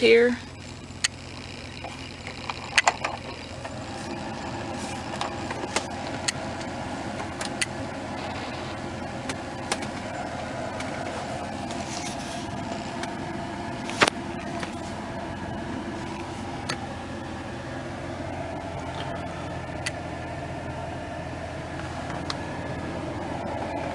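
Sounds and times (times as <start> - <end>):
ventilation blower whooshing hum: 0.0 - 23.9
sharp clicks: 0.6 - 3.8, 5.1 - 8.6.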